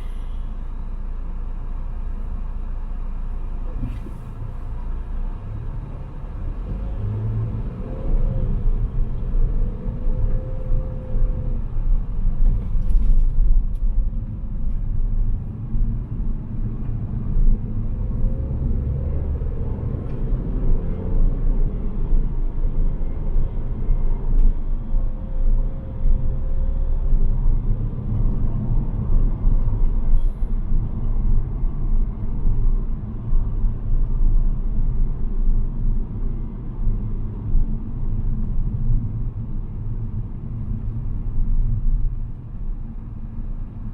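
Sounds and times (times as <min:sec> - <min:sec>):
car engine and road noise: 0:00.0 - 0:43.9.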